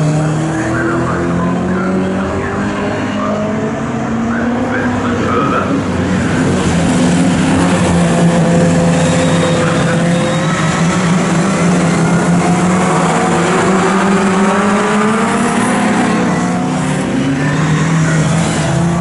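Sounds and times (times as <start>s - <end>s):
race car engines at high revs: 0.0s - 19.0s.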